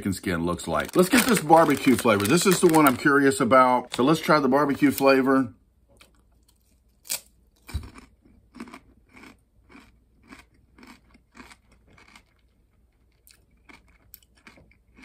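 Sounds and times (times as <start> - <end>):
person crunching crispy food: 0.7 - 3.2, 6.0 - 15.0.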